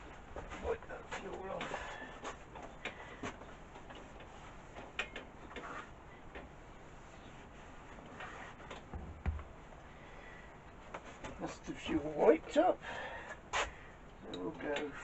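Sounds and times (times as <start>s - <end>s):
rubbing rustles: 0.0s - 9.8s
dull thump: 8.9s - 9.6s.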